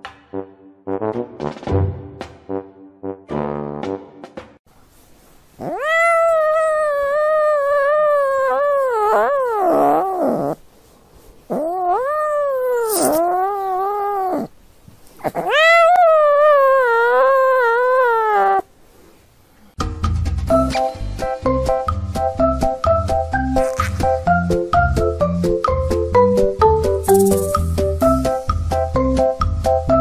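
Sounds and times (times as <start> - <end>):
cat meowing: 5.6 - 10.6, 11.5 - 14.5, 15.2 - 18.7.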